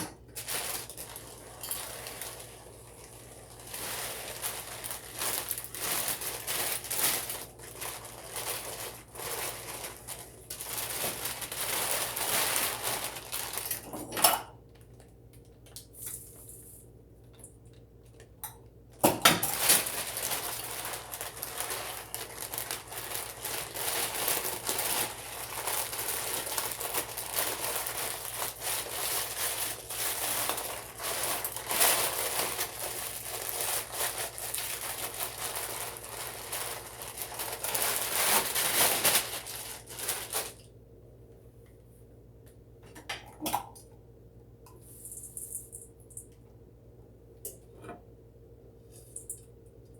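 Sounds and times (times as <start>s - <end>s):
oats crinkling and scraping: 0.3s - 13.9s, 19.5s - 40.6s.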